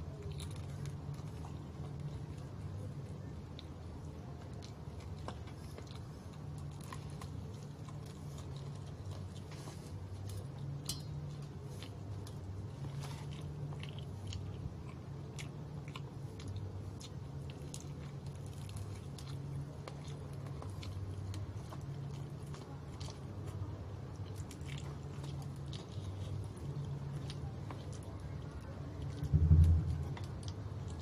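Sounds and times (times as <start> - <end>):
person crunching fried chicken: 0.0 - 2.8, 4.3 - 31.0
steady low hum: 0.0 - 31.0.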